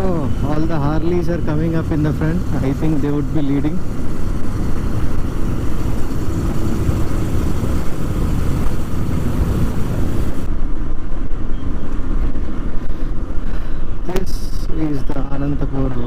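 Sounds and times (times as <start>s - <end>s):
motorcycle engine: 0.0s - 10.7s
wind rush: 0.0s - 15.8s
road noise: 0.0s - 16.0s.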